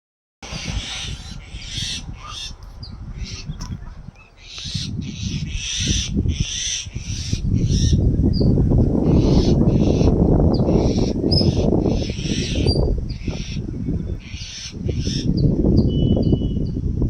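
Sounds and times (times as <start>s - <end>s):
low rumble: 0.4s - 6.4s
birds giving harsh raspy calls: 0.4s - 15.6s.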